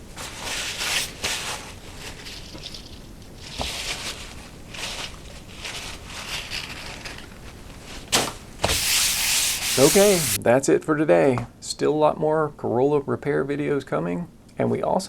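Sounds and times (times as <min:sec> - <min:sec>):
paper rustling and scraping: 0:00.0 - 0:10.4.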